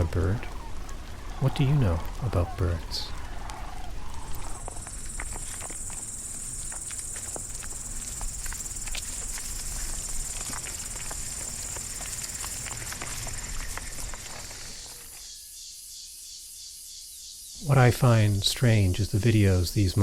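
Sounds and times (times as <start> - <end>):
small clicks and ticks: 0.0 - 15.3
insects trilling: 0.0 - 20.0.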